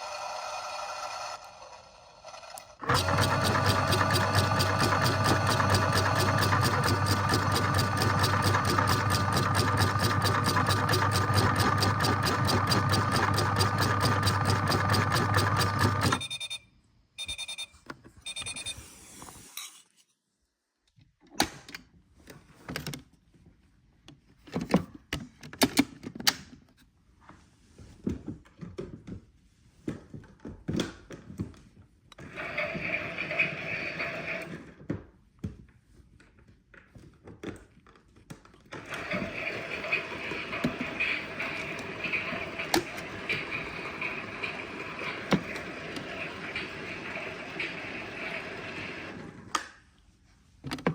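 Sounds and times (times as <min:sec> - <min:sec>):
washing machine running: 0:02.8 - 0:16.2, 0:32.3 - 0:34.5, 0:38.8 - 0:49.4
short electronic beeps: 0:16.2 - 0:18.9.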